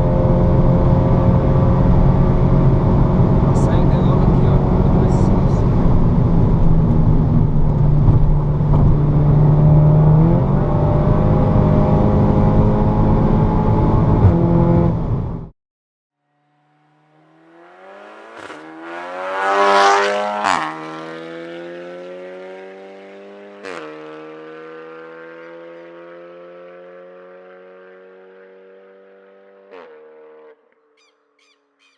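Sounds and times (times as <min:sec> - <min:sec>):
car engine running: 0:00.0 - 0:15.5
exhaust cracks: 0:03.5 - 0:09.4
car passing loudly: 0:17.1 - 0:30.2.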